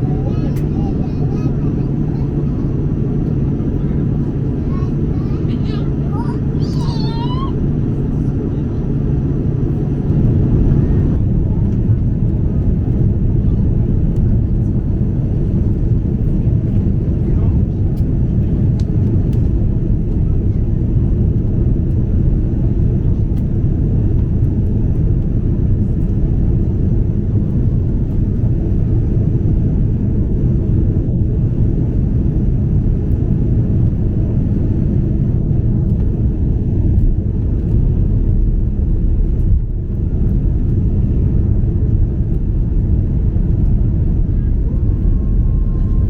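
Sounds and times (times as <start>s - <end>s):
airliner cabin engine roar: 0.0s - 46.0s.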